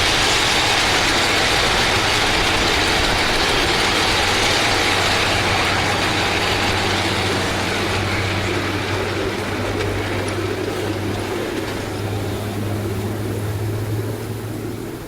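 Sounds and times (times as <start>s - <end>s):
low hum: 0.0s - 15.0s
miniature train rattling on track: 0.0s - 15.0s.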